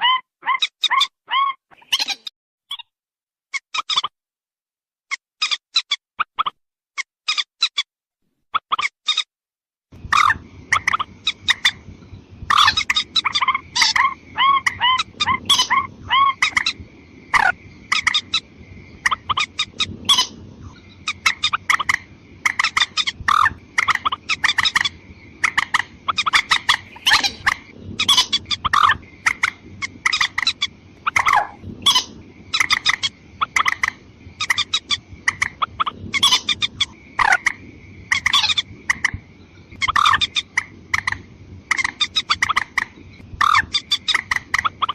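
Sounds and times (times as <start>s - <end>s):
watercock calls: 12.5s - 18.4s, 21.0s - 44.9s.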